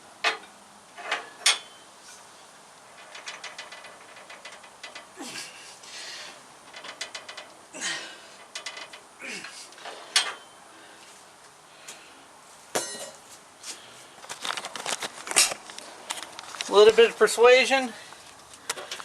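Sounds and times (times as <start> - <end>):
metallic clicks and clanks: 2.9 - 5.2, 6.6 - 7.6, 8.4 - 9.1.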